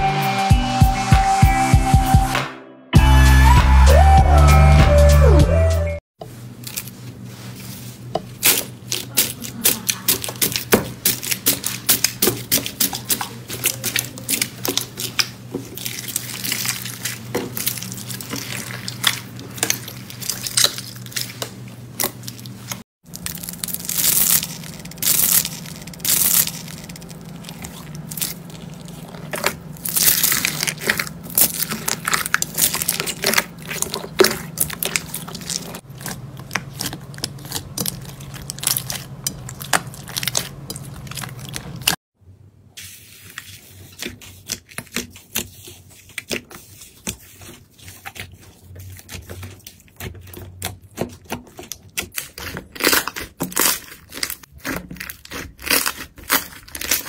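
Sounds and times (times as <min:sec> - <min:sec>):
slime crackling and popping: 0:08.4 - 0:42.0, 0:50.0 - 0:57.0.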